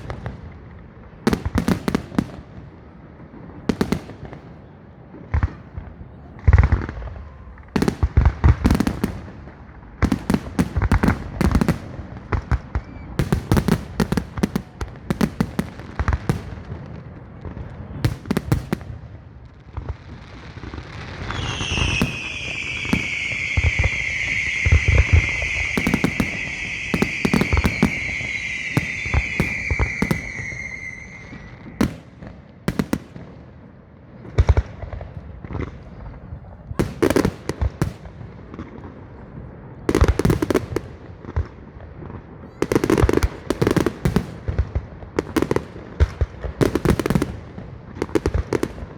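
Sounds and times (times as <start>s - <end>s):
firework bangs and cracks: 0.0s - 48.9s
falling firework whistle: 12.6s - 13.8s, 20.8s - 32.1s.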